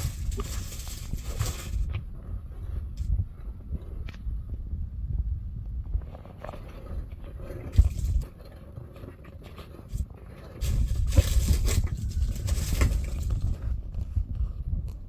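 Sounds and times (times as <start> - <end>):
dry leaves and twigs rustling: 0.0 - 2.0, 7.5 - 14.5.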